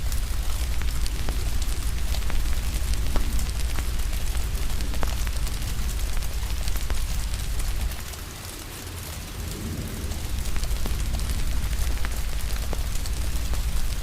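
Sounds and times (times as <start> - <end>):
steady rain: 0.0 - 14.0
wood fire crackling: 0.0 - 14.0
deep low rumble: 9.1 - 14.0.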